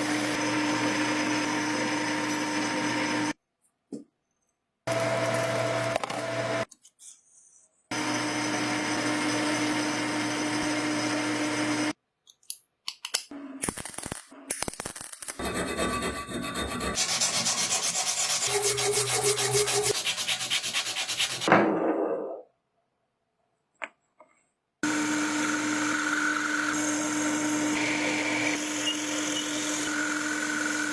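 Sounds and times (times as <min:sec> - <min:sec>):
power tool running: 0:00.0 - 0:03.4, 0:04.9 - 0:06.7, 0:07.9 - 0:12.0, 0:24.8 - 0:30.9
rhythmic rubbing sanding: 0:15.4 - 0:21.5.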